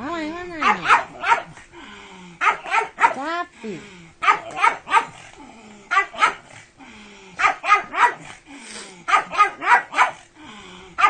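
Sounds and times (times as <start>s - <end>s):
dog barking: 0.6s - 1.6s, 2.4s - 3.2s, 4.2s - 5.2s, 5.9s - 6.5s, 7.4s - 8.3s, 9.1s - 10.2s.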